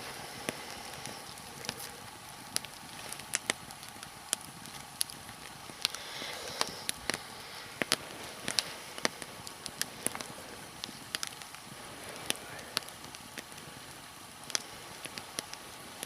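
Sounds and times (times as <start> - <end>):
log fire crackling: 0.0 - 16.0.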